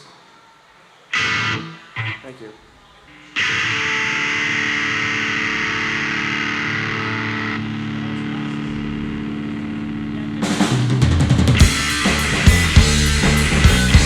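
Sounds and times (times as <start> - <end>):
distorted electric guitar ringing: 1.1 - 2.4, 3.1 - 14.0
bass guitar: 4.9 - 14.0
drum kit kick and snare: 10.4 - 14.0.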